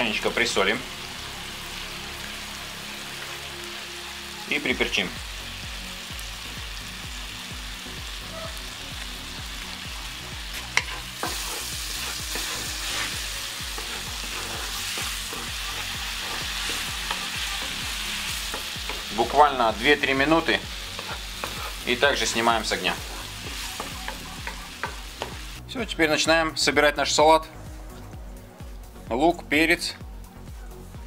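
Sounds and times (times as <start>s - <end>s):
tomatoes sizzling in a skillet: 0.0s - 26.0s
wooden spatula stirring: 10.8s - 25.4s.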